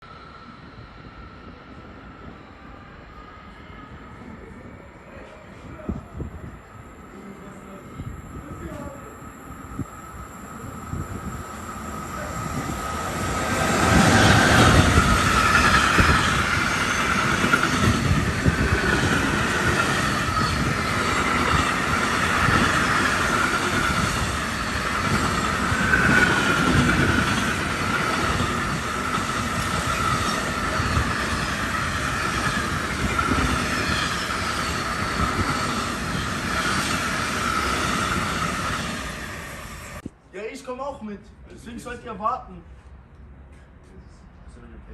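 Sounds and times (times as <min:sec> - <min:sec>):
train wheels squealing: 0:06.9 - 0:40.0.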